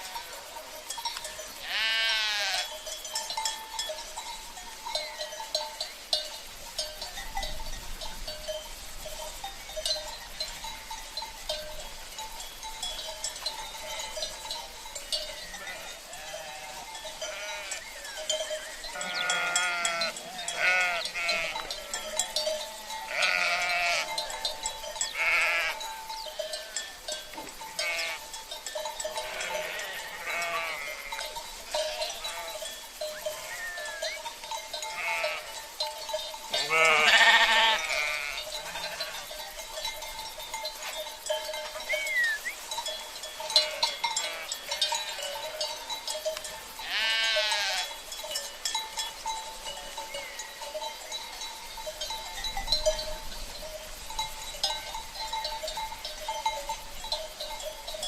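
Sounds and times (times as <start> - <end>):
livestock bells clanking: 0.0 - 58.0
sheep bleating: 1.6 - 2.7, 15.5 - 17.8, 18.9 - 22.1, 23.1 - 24.2, 25.2 - 25.8, 27.8 - 28.2, 29.2 - 32.6, 34.9 - 35.6, 36.6 - 39.3, 43.6 - 45.2, 46.8 - 47.9.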